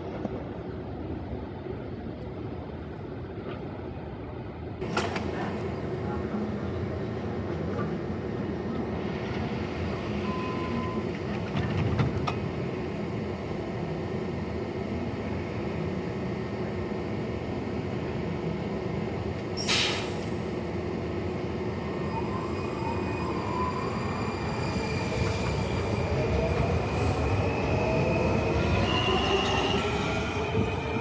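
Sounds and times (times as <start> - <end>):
train low rumble: 0.0 - 31.0
sharp hiss of air: 19.6 - 20.5.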